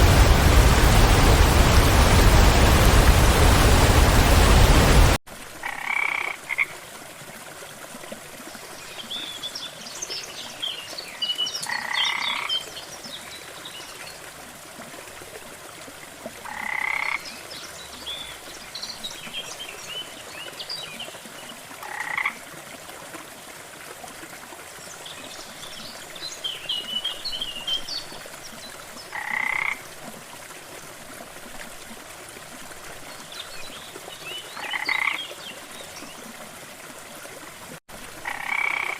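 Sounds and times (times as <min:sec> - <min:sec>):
faint steady hiss: 0:00.0 - 0:05.2.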